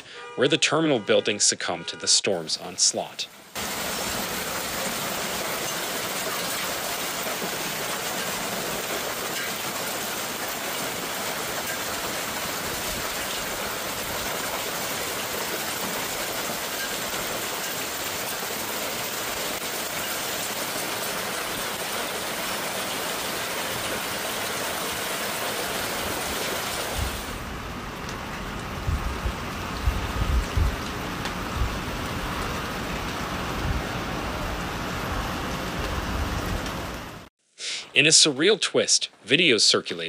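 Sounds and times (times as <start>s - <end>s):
hail and heavy rain striking: 3.5s - 27.4s.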